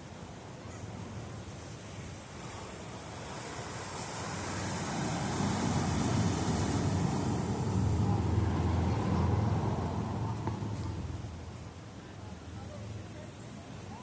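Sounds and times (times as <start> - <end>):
ocean wave roaring: 3.3 - 10.3.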